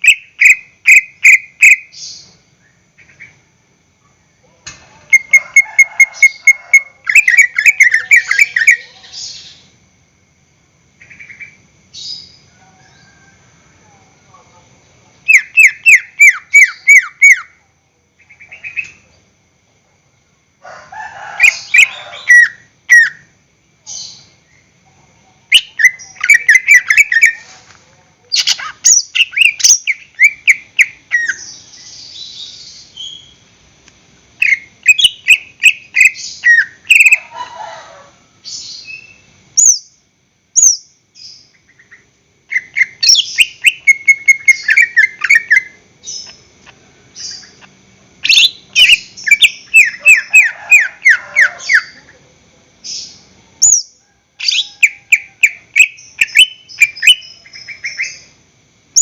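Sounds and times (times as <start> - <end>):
leafbird singing: 0.0 - 3.5, 5.0 - 9.8, 11.0 - 13.3, 14.9 - 17.6, 18.2 - 19.1, 21.4 - 24.7, 25.4 - 27.7, 28.3 - 33.5, 34.4 - 37.3, 38.4 - 40.0, 40.6 - 52.1, 52.8 - 58.4.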